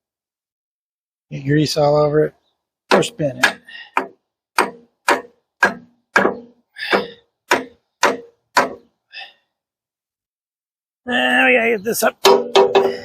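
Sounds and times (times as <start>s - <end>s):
hammer striking steel pin: 2.9s - 8.9s, 12.2s - 13.0s.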